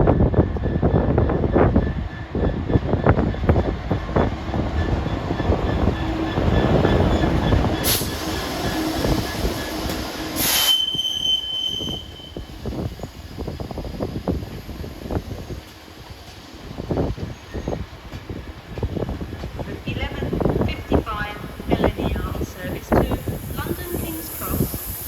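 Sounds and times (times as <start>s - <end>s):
train wheels clattering on track: 0.0s - 25.0s
high wheel squeal: 4.8s - 13.2s
short hissing bursts: 23.3s - 25.0s.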